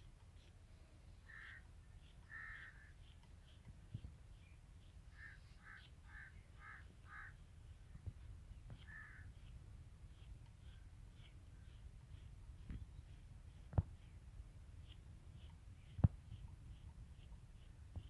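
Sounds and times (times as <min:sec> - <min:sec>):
bird calling: 0:01.3 - 0:03.7, 0:05.1 - 0:07.4, 0:08.8 - 0:09.6.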